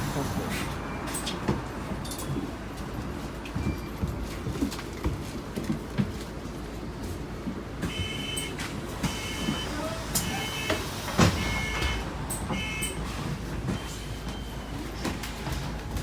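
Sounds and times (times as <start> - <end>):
bus engine rumble: 0.0 - 16.0
bus door warning beeping: 7.8 - 16.0.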